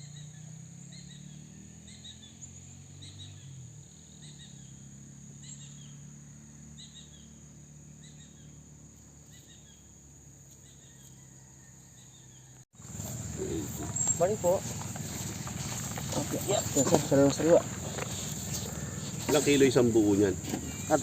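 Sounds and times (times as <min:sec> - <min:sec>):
high insect drone: 0:12.8 - 0:21.0.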